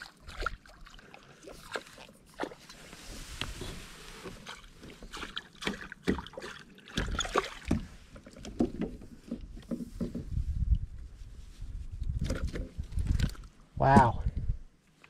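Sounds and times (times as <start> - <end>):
low rumble on microphone: 9.4 - 14.7.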